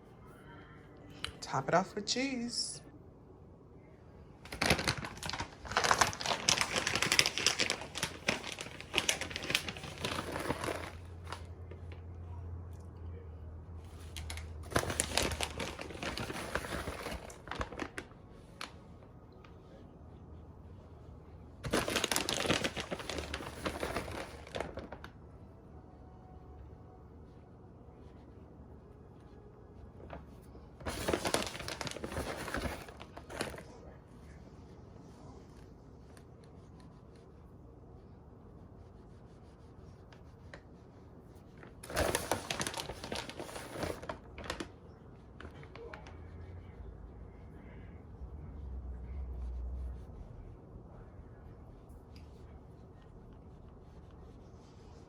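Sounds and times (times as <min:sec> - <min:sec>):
plastic bag crinkling: 0:04.5 - 0:11.5, 0:14.0 - 0:18.8, 0:21.6 - 0:25.2, 0:30.8 - 0:33.8, 0:41.8 - 0:46.0.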